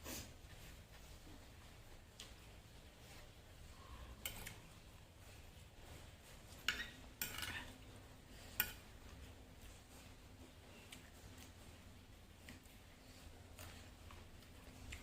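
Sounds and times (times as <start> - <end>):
utensil scraping dish: 4.1 - 4.7, 6.6 - 7.8
utensils clinking on dish: 6.6 - 7.7.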